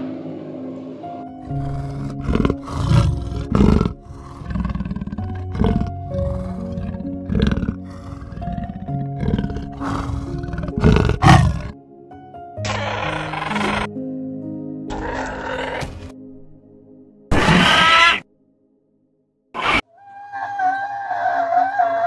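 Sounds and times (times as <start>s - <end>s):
gentle background music: 0.0s - 19.8s, 20.5s - 22.0s
large animal deep rough calls: 1.4s - 11.8s, 12.6s - 13.9s, 14.9s - 16.2s.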